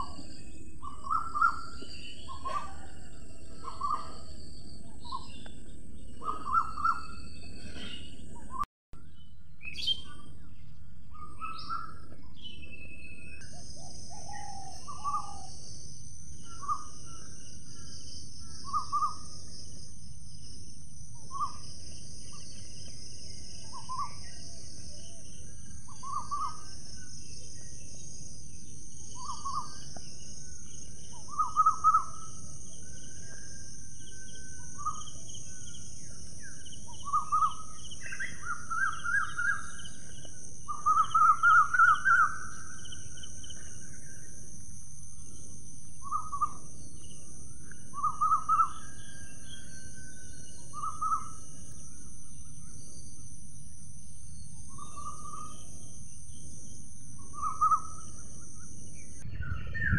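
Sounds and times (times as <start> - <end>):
bird calling: 0.0 - 8.6, 11.1 - 19.6, 21.2 - 44.4, 45.3 - 53.2, 54.5 - 59.9
steady high-pitched hiss: 13.4 - 59.9.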